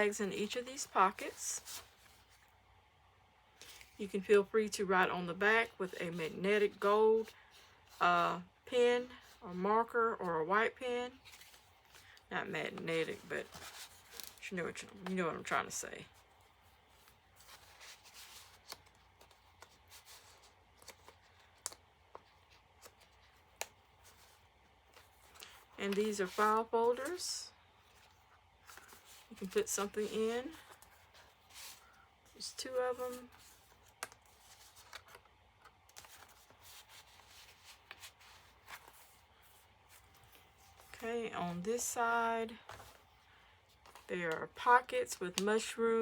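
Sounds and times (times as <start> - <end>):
paper rustling: 11.2 - 15.2, 16.3 - 41.0, 42.6 - 43.1, 43.7 - 44.1
paper rustling and clicking: 33.1 - 39.1.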